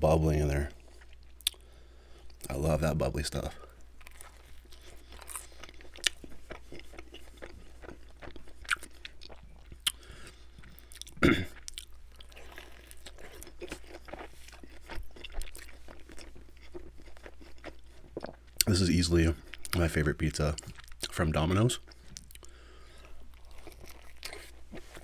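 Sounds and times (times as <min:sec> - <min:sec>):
crunchy chewing of pizza crust: 0:03.4 - 0:25.0.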